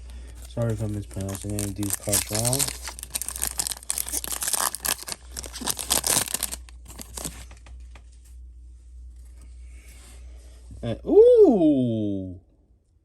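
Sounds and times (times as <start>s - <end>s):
foil wrapper crinkling and tearing: 0.0s - 7.6s
low steady hum: 0.0s - 13.0s.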